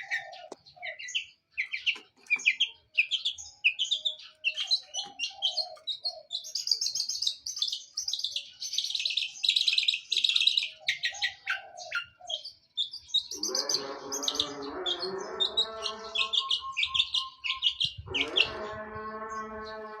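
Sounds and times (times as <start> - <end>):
bird singing high chirps: 0.0 - 20.0
lower harsh multi-tone call: 13.4 - 20.0.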